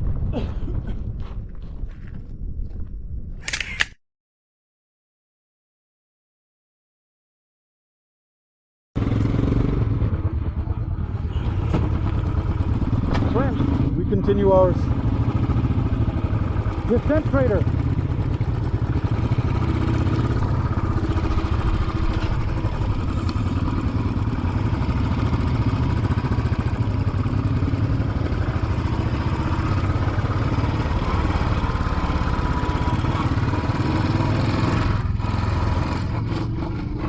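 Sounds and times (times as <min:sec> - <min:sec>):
motorcycle engine running: 0:09.0 - 0:37.0.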